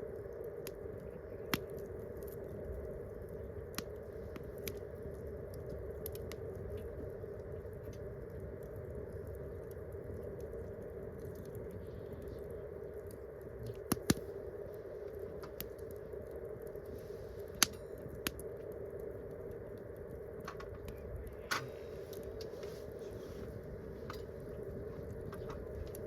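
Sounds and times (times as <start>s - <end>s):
campfire crackling: 0.0s - 26.0s
steady background hiss: 11.8s - 26.0s.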